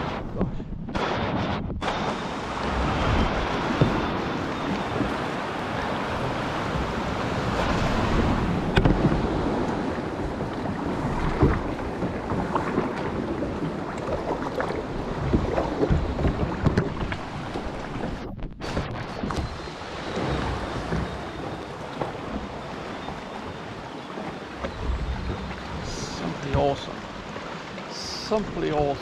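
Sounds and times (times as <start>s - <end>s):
wind buffeting microphone: 0.0s - 23.8s, 24.6s - 27.5s
waves sloshing around a kayak: 0.0s - 29.0s.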